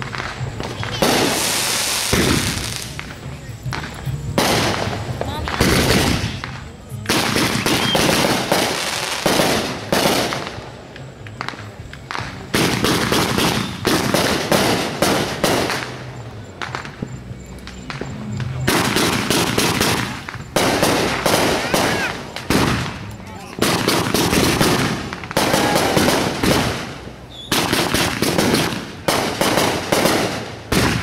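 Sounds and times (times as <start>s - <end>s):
fireworks crackling bangs: 0.0s - 31.0s.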